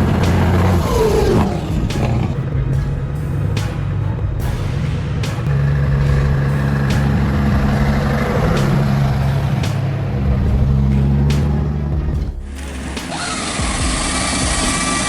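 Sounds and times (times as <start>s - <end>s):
truck diesel engines droning: 0.0s - 15.0s.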